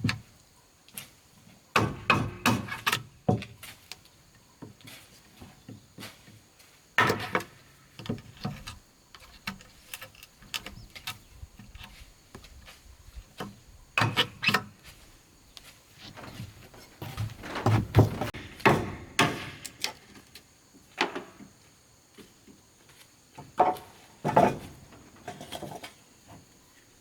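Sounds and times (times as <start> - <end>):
bamboo and wood knocking: 1.8 - 3.6, 7.0 - 14.7, 16.1 - 20.0, 23.4 - 25.9.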